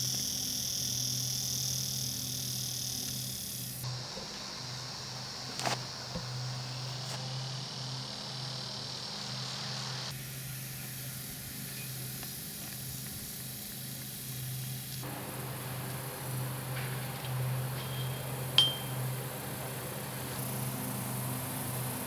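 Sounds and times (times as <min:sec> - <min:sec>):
outdoor background hiss: 0:00.0 - 0:22.0
low even hum: 0:15.0 - 0:22.0.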